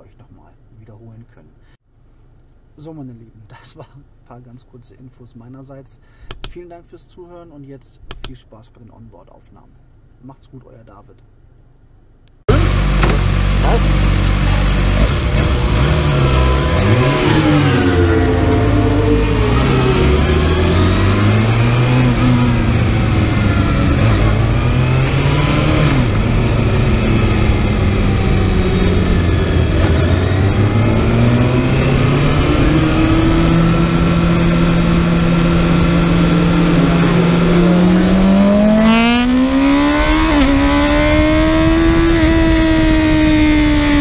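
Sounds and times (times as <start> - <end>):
motorcycle engine running hard: 12.5 - 44.0.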